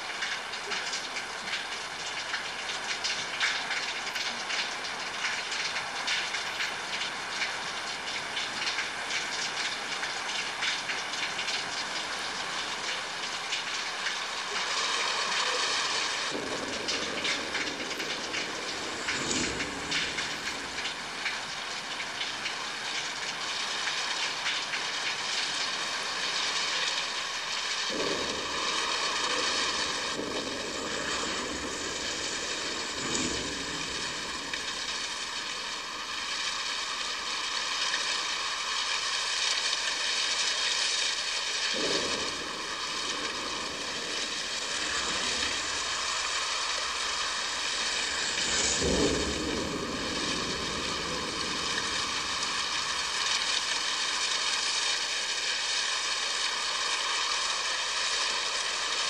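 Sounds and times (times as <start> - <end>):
heavy rain: 0.0 - 59.0
distant thunder rumbling: 41.8 - 53.4.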